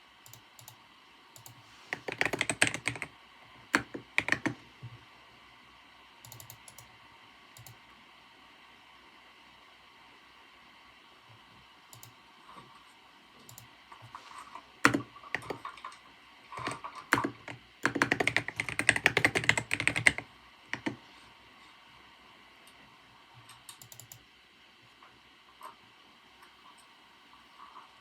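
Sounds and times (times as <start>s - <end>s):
typing on computer keyboard: 0.3s - 0.8s, 1.4s - 3.1s, 3.7s - 4.6s, 6.2s - 6.9s, 7.6s - 7.8s, 13.4s - 21.0s, 23.5s - 24.2s.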